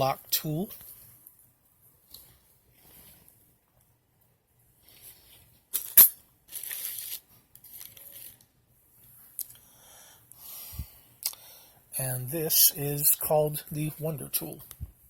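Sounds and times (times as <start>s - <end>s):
rustling: 4.8s - 9.4s.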